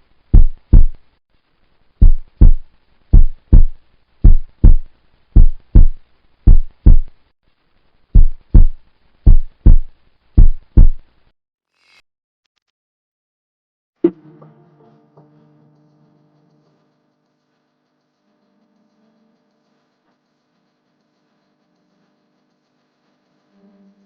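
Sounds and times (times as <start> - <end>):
heartbeat thumps: 0.3 - 1.0, 2.0 - 7.1, 8.2 - 11.0.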